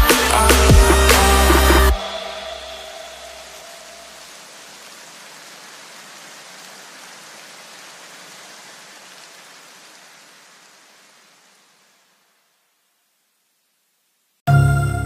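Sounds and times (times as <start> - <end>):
steady hiss: 0.0 - 14.4.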